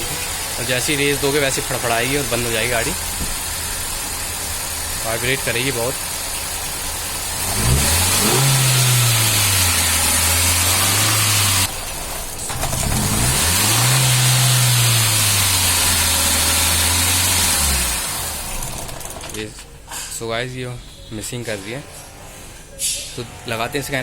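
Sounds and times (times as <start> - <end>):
car engine revving: 0.0 - 19.1.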